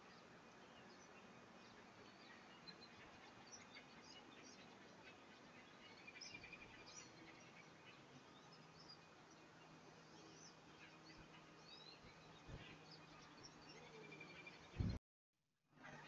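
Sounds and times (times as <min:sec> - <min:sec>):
faint birds chirping: 0:00.0 - 0:15.0
low background hiss: 0:00.0 - 0:15.0.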